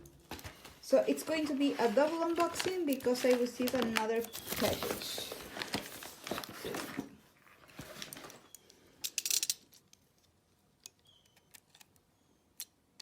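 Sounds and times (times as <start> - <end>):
packaging rustling and crinkling: 0.0 - 8.7.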